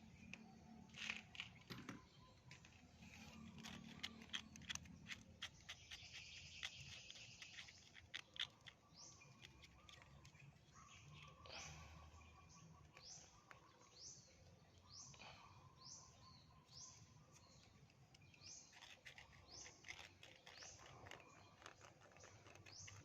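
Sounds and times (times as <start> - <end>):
light scraping of engine parts: 0.2 - 11.3.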